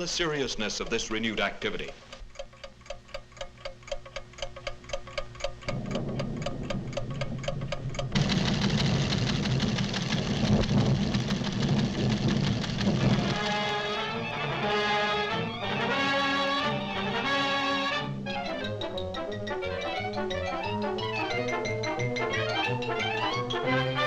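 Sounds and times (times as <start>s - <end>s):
low earth tremor rumble: 5.7s - 13.7s.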